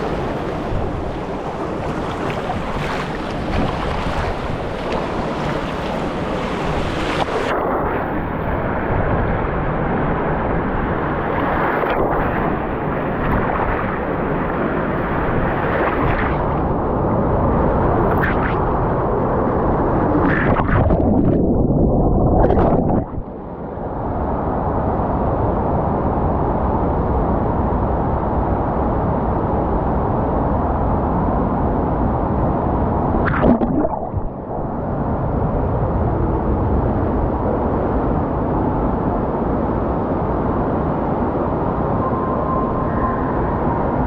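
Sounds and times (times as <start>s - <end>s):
water rushing down a slide: 33.2s - 34.8s.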